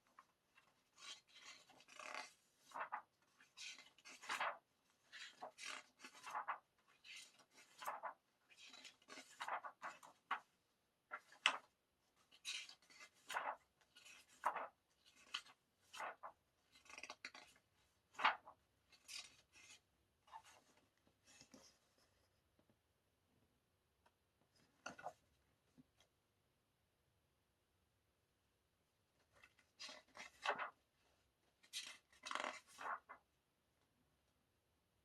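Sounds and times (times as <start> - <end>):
paper rustling and sliding: 0.9 - 10.5, 11.1 - 21.9, 29.7 - 30.8.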